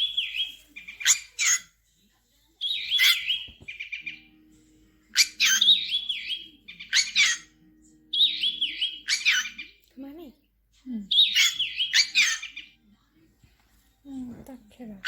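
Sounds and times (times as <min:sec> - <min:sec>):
bird chirping with trills: 0:00.0 - 0:01.7, 0:02.6 - 0:10.1, 0:11.1 - 0:12.8.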